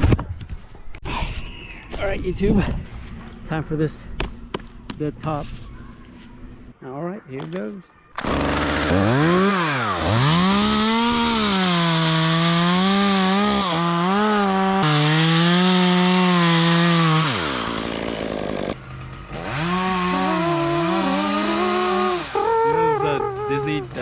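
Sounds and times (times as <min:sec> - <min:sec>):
chainsaw cutting wood: 0:08.2 - 0:24.0.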